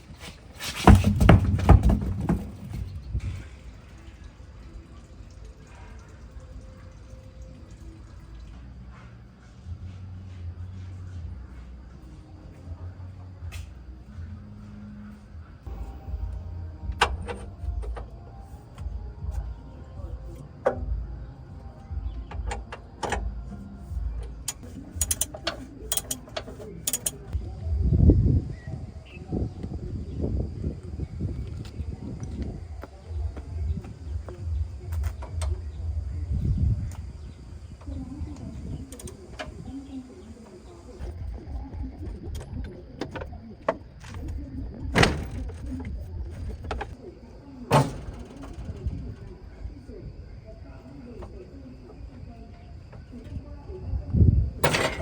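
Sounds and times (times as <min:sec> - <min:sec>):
low steady rumble: 0:13.9 - 0:22.6, 0:27.3 - 0:40.0
sharp clicks and knocks: 0:24.4 - 0:27.4.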